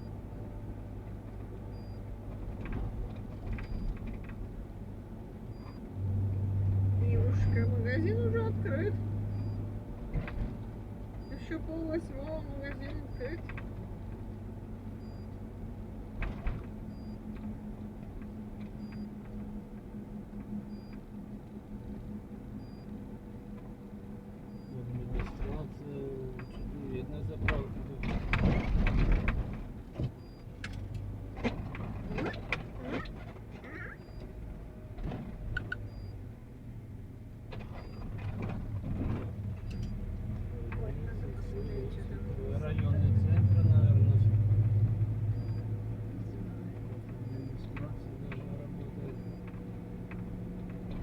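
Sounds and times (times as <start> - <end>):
engine and road hum: 0.0 - 51.0
faint high beep: 1.7 - 2.0, 7.4 - 7.8, 9.3 - 9.6, 15.0 - 15.4, 16.9 - 17.2, 18.8 - 19.1, 22.6 - 22.9, 24.5 - 24.8, 35.9 - 36.2, 39.7 - 40.0, 41.5 - 42.0, 43.4 - 43.8, 45.3 - 45.7, 47.2 - 47.7, 49.1 - 49.4.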